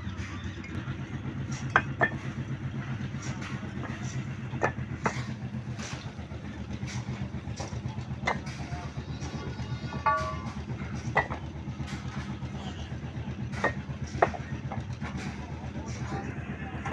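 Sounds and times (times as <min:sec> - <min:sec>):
vehicle engine idling: 0:00.0 - 0:16.9
bricks clinking together: 0:01.5 - 0:02.4, 0:06.9 - 0:08.7, 0:10.0 - 0:11.4.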